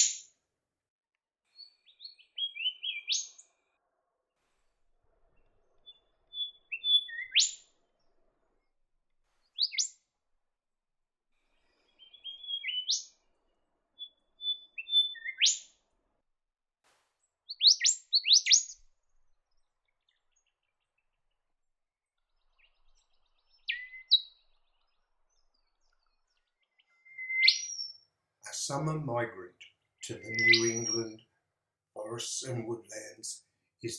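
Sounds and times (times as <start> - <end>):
bird whistling with rising upsweep: 1.6 - 3.3, 5.8 - 7.6, 9.5 - 9.9, 11.9 - 13.1, 14.0 - 15.6, 17.5 - 18.8, 23.3 - 24.5, 26.9 - 28.0, 30.2 - 31.1.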